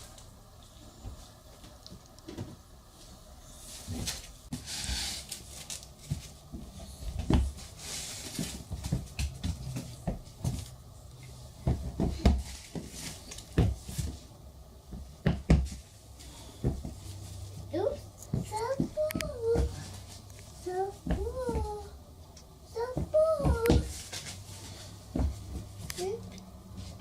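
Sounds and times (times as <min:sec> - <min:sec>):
rustling: 0:02.9 - 0:14.3.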